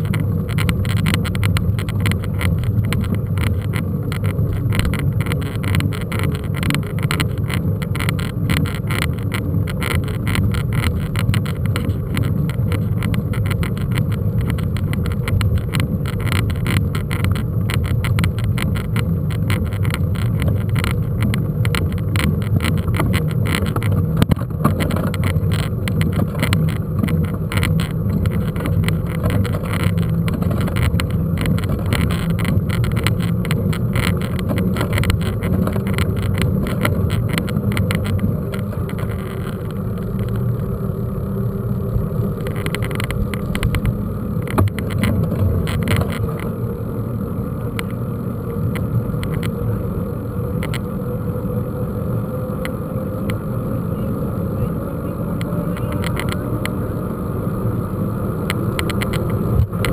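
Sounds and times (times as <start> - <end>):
bike rattling and knocking: 0.0 - 46.6
mountain bike riding noise: 0.0 - 59.9.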